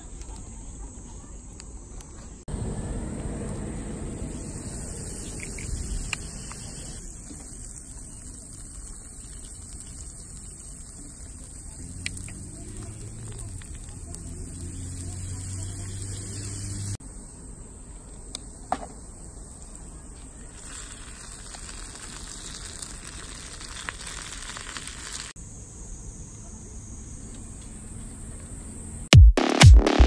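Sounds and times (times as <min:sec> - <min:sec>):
low hum: 0:02.5 - 0:07.0
meat sizzling over fire: 0:02.6 - 0:17.0, 0:20.4 - 0:25.4.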